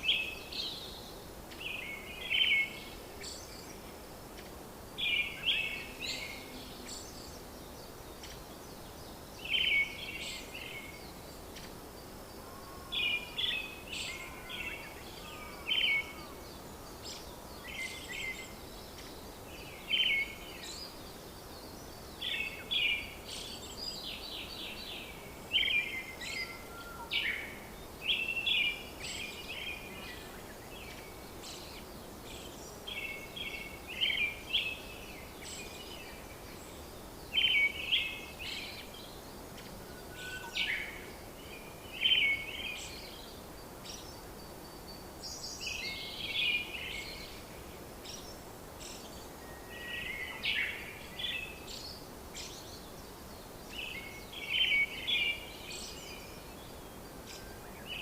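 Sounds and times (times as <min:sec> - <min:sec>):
background hiss: 0:00.0 - 0:58.0
birds chirping and singing: 0:12.4 - 0:47.4.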